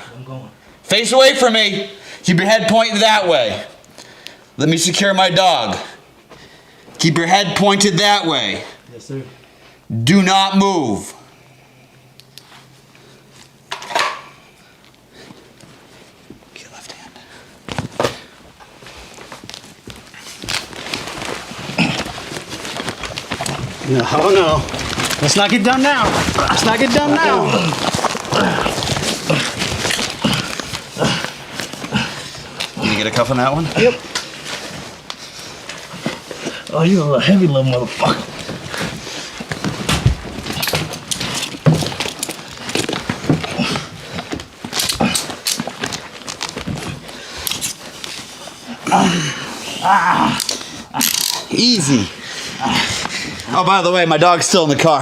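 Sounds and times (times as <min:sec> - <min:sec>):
heavy breathing: 0:05.8 - 0:07.0, 0:27.6 - 0:36.8, 0:48.3 - 0:53.5.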